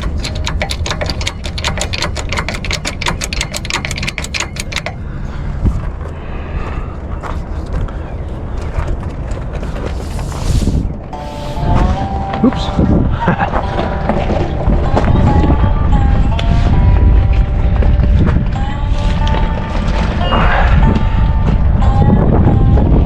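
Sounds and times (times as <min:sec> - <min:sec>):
ratchet clicking: 0:00.0 - 0:05.0
low rumble: 0:05.0 - 0:23.0.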